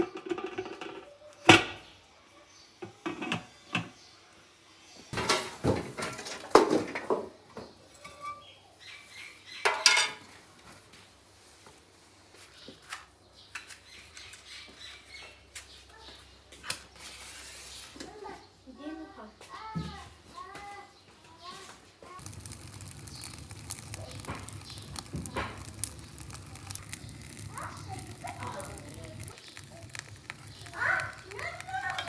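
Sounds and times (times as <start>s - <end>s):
dishes and utensils clinking: 9.7s - 10.3s.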